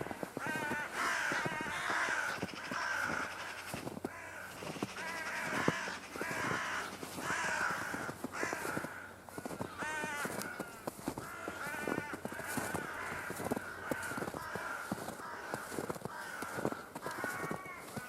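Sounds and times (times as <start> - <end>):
crows cawing: 0.0 - 18.0
footsteps crunching in snow: 0.0 - 18.0.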